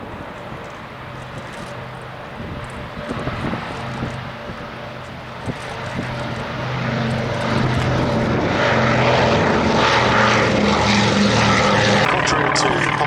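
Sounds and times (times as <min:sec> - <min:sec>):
aircraft radial engines in flight: 0:00.0 - 0:13.0.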